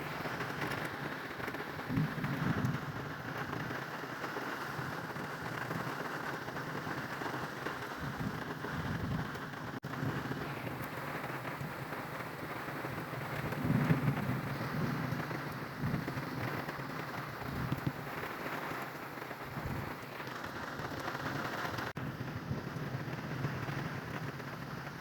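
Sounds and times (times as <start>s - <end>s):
steady rain falling: 0.0s - 25.0s
low thunder rumbles: 1.7s - 3.8s, 8.0s - 25.0s.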